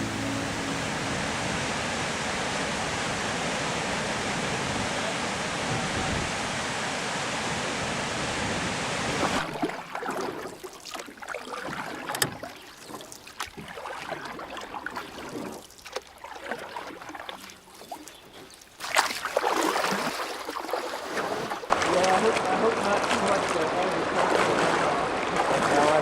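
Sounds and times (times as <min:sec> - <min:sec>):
water lapping around kayak: 0:00.0 - 0:26.0
paddle strokes: 0:09.0 - 0:26.0.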